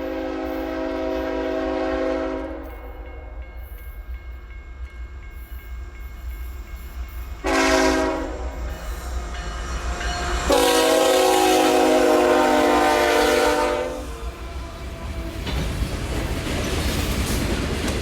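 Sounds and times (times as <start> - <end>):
train air horn blasts: 0.0 - 3.4, 7.4 - 8.7, 10.4 - 15.3.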